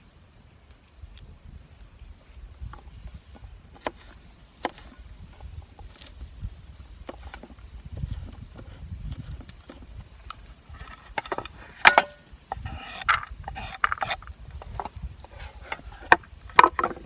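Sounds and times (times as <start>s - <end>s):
cooking gear clicks and knocks: 6.9s - 17.0s.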